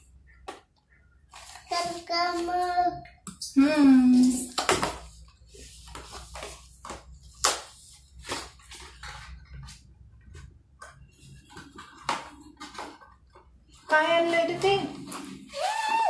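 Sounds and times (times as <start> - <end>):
packaging rustling and crinkling: 1.3 - 2.2.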